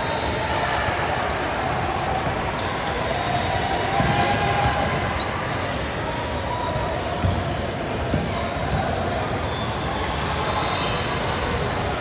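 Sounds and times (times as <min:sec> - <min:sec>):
crowd chatter: 0:00.0 - 0:12.0
basketball bouncing on court: 0:04.0 - 0:05.0, 0:06.7 - 0:09.1.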